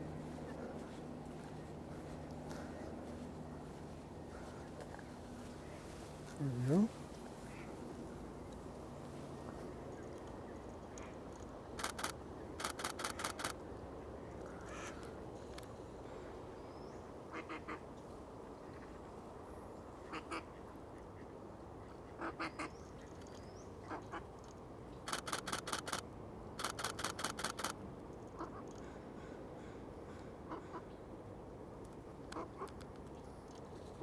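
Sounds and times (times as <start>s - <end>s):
camera shutter clicking: 11.8s - 13.6s, 25.1s - 26.0s, 26.6s - 27.8s.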